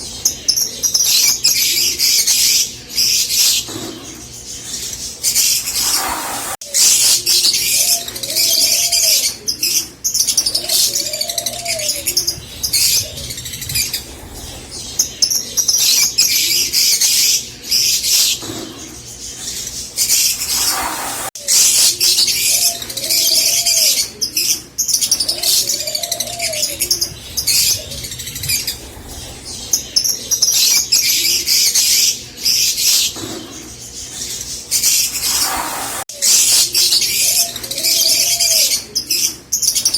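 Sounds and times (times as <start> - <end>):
lovebirds chirping shrilly: 0.0 - 32.1, 32.7 - 39.9
bird cooing: 5.2 - 17.1, 20.1 - 31.8, 35.1 - 39.9.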